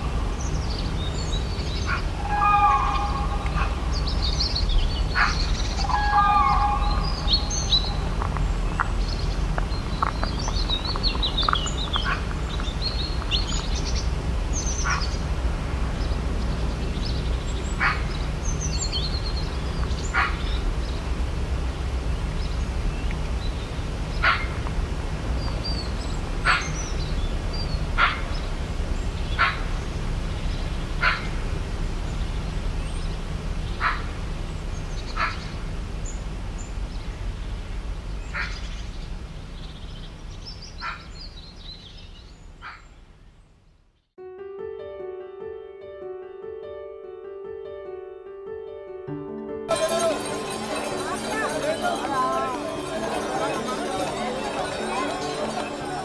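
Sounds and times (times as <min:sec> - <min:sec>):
steady low rumble: 0:00.0 - 0:43.6
birds chirping: 0:00.0 - 0:44.1, 0:49.7 - 0:56.0.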